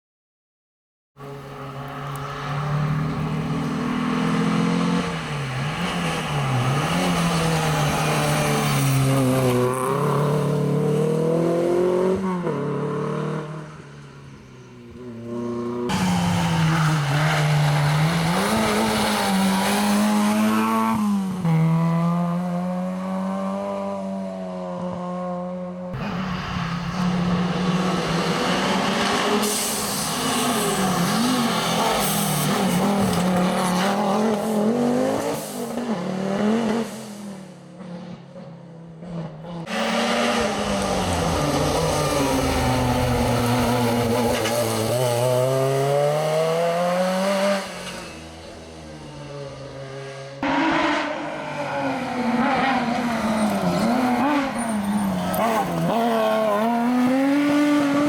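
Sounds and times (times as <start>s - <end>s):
rally car engines revving past: 1.2s - 58.0s.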